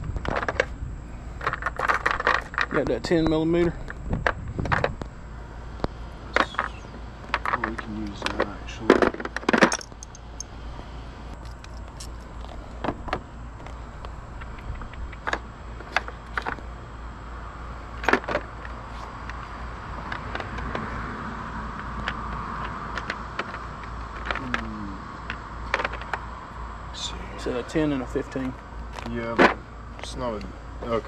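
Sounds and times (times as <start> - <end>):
steady low hum: 0.0 - 31.0
metal tools clinking: 9.6 - 10.5.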